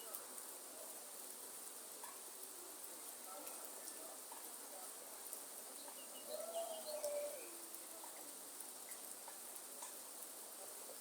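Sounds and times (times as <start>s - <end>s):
bird whistled call: 6.2s - 7.5s.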